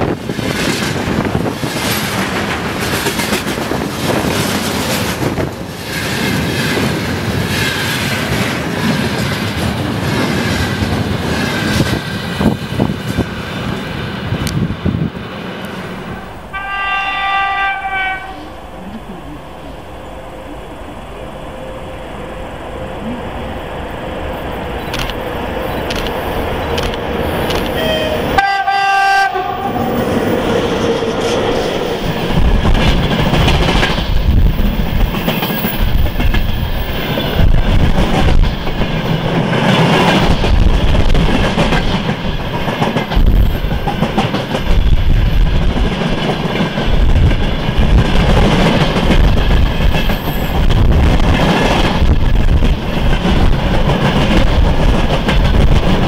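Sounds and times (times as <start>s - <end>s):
train wheels rumbling and clattering: 0.0s - 56.0s
locomotive horn blast: 15.6s - 26.0s, 27.7s - 30.0s.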